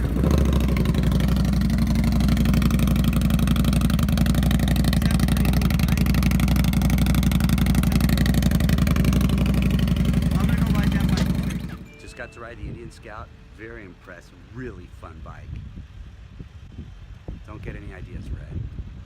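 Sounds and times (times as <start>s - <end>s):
motorcycle engine idling: 0.0s - 11.9s.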